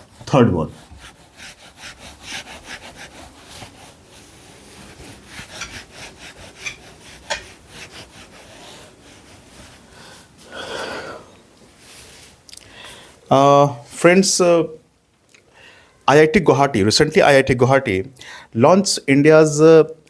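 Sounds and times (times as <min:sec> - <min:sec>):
pen scratching strokes: 0:00.0 - 0:09.9.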